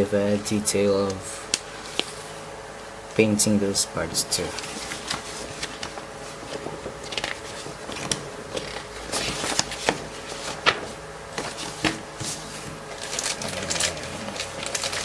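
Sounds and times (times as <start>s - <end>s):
plastic bags rustling: 4.1s - 15.0s.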